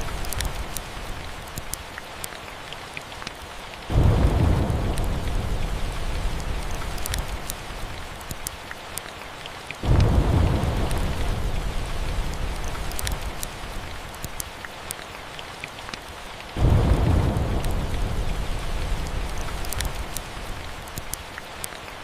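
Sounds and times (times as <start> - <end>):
wood fire crackling: 0.0 - 21.9
steady rain: 0.0 - 22.0
thunder rolling: 3.9 - 8.0, 9.8 - 13.8, 16.6 - 20.6.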